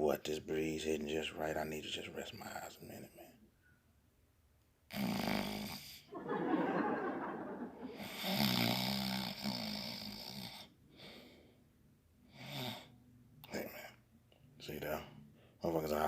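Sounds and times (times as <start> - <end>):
man snoring: 4.9 - 6.1, 7.9 - 11.1, 12.3 - 13.0.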